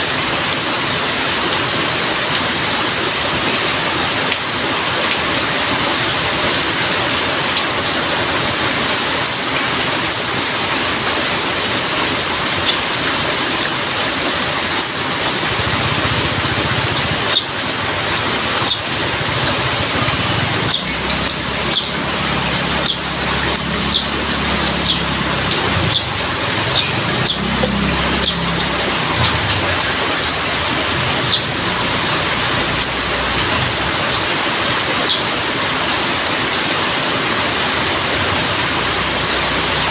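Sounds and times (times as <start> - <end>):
heavy rain falling: 0.0 - 39.9
low rumble: 18.0 - 34.3.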